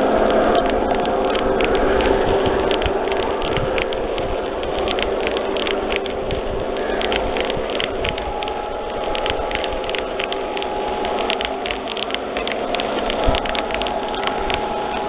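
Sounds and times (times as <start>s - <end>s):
wheels clicking on rails: 0.0s - 15.0s.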